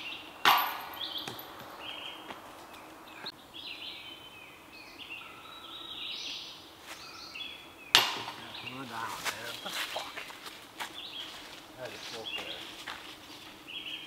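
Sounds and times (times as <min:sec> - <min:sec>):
songbirds chirping and singing: 0:00.0 - 0:14.0
sharp loud smack: 0:08.0 - 0:08.6.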